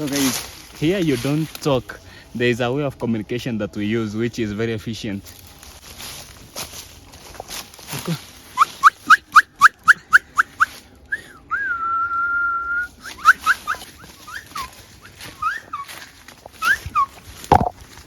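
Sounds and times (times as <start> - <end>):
person whistling birdsong: 8.6 - 14.5.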